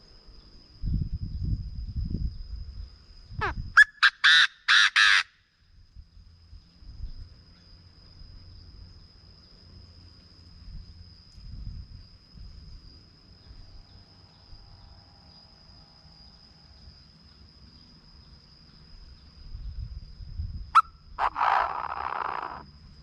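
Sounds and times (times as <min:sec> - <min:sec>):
low wind rumble: 0:00.2 - 0:03.8, 0:05.6 - 0:07.4, 0:10.5 - 0:15.2, 0:19.0 - 0:23.0
bird harsh call: 0:03.4 - 0:05.3, 0:20.8 - 0:22.6
high-pitched insect buzz: 0:13.4 - 0:23.0.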